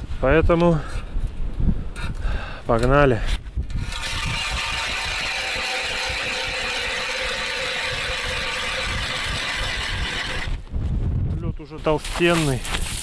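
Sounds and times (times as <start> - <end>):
ice auger grinding: 3.7 - 10.7, 12.1 - 13.0.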